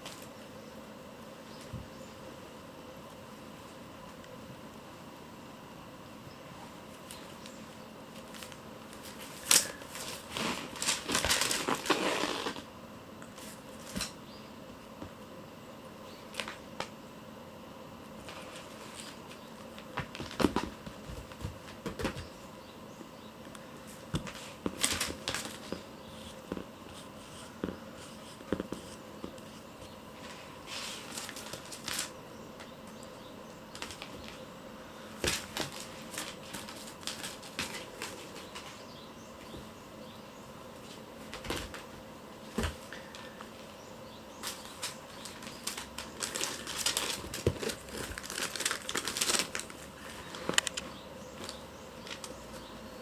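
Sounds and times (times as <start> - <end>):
kittens rustling and scratching: 6.6 - 14.2, 18.2 - 22.4, 23.5 - 33.1, 33.7 - 39.8, 40.8 - 52.8.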